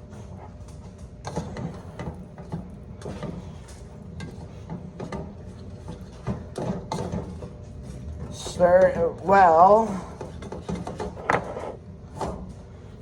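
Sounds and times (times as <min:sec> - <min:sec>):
spoon scraping and knocking a pot: 0:01.2 - 0:09.2.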